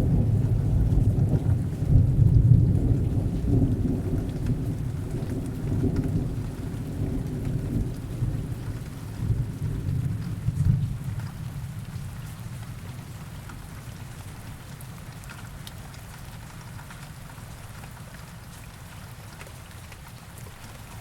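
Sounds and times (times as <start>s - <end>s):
distant thunder rumble: 0.0s - 11.6s
heavy rain: 0.0s - 21.0s.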